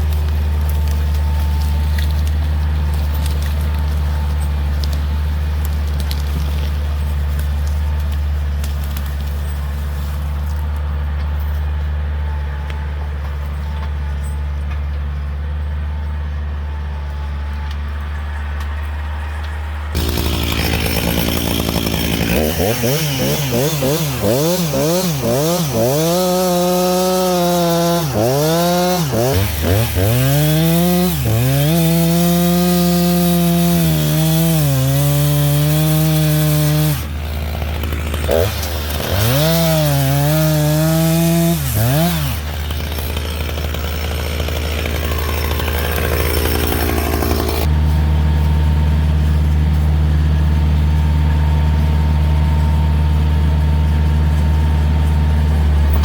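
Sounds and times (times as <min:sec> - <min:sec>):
chainsaw cutting wood: 0:00.0 - 0:10.6, 0:19.9 - 0:47.8, 0:55.7 - 0:56.0
diesel tractor idling: 0:00.0 - 0:32.6, 0:40.7 - 0:56.0.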